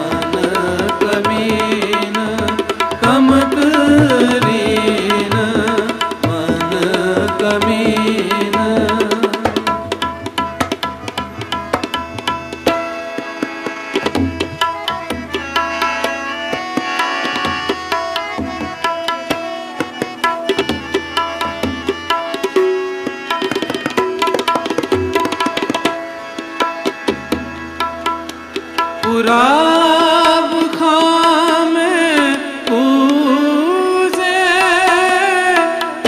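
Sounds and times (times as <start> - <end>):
tabla playing fast strokes: 0.0 - 36.0.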